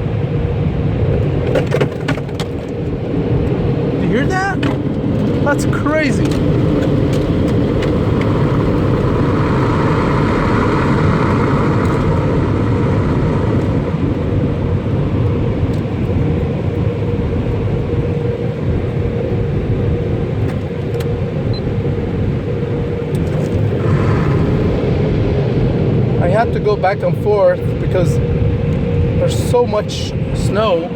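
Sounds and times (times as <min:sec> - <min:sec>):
machinery hum: 0:03.0 - 0:20.4, 0:21.2 - 0:26.8
car wash water spray and brushes: 0:05.4 - 0:14.8, 0:23.3 - 0:24.8.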